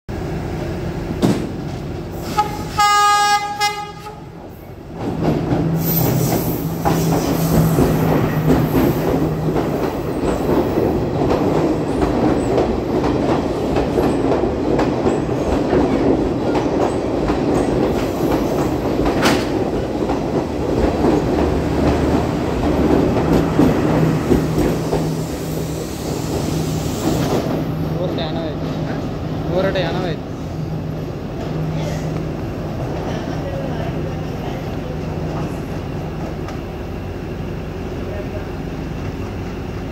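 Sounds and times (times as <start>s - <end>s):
train horn chord: 2.3s - 4.3s
wheels rumbling and clacking: 4.9s - 30.1s.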